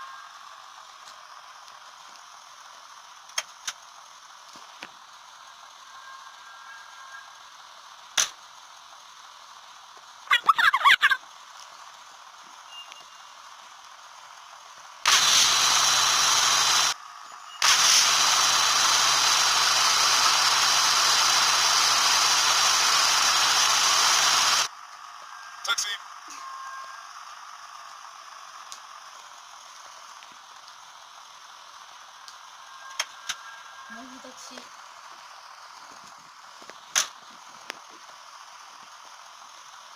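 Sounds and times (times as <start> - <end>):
warbling animal call: 10.3 - 11.2.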